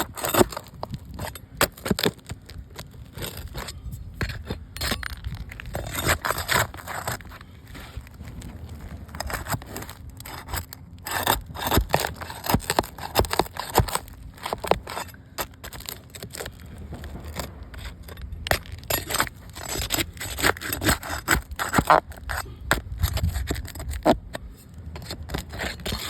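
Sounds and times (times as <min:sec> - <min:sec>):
scraping on hard object: 0:00.0 - 0:26.0.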